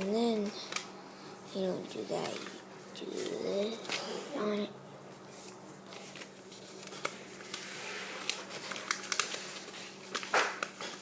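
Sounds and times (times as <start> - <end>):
faint steady hum: 0.0 - 11.0
paper rustling and crinkling: 1.6 - 4.2, 5.3 - 11.0.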